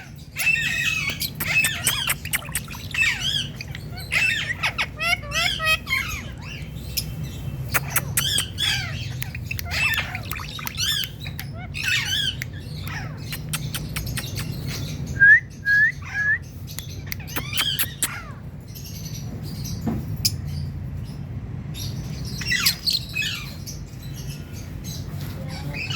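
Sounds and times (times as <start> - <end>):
parrot squawking and chattering: 0.0 - 15.1, 16.9 - 18.5.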